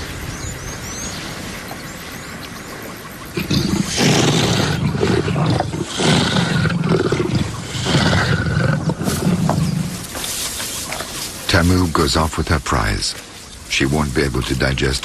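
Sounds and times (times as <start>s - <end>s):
big cat growling and snarling: 3.4s - 10.1s.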